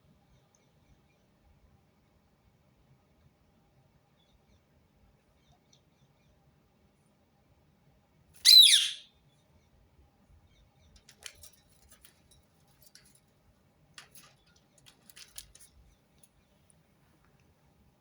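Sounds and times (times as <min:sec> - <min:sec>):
parakeet screech: 0:08.4 - 0:09.1.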